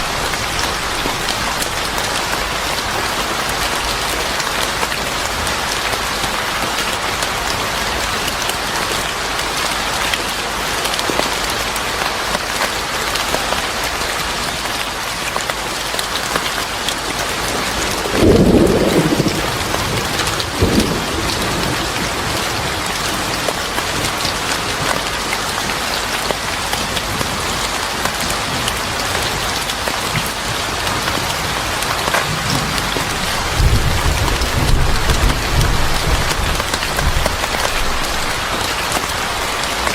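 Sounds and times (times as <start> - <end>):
rain pouring: 0.0 - 39.9
thunder rumbling: 17.5 - 24.2, 32.0 - 39.4.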